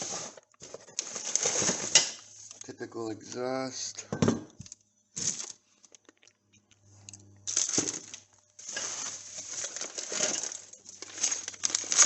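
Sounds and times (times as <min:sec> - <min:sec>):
plastic packaging crinkling: 0:00.0 - 0:02.6, 0:05.2 - 0:06.4, 0:07.5 - 0:12.0
small metal parts clinking: 0:07.5 - 0:08.9.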